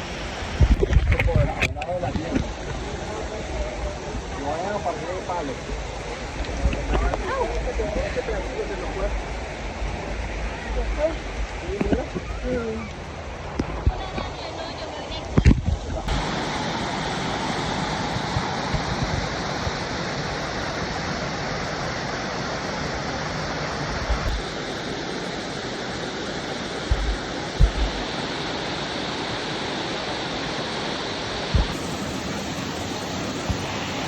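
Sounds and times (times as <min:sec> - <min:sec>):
flowing water rushing: 0:00.0 - 0:34.0
low bumps on microphone: 0:26.8 - 0:28.1, 0:31.6 - 0:31.8.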